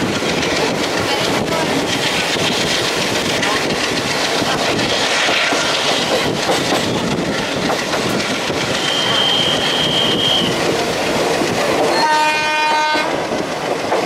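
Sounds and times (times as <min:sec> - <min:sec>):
train wheels clattering: 0:00.0 - 0:14.0
high wheel squeal: 0:08.7 - 0:10.6.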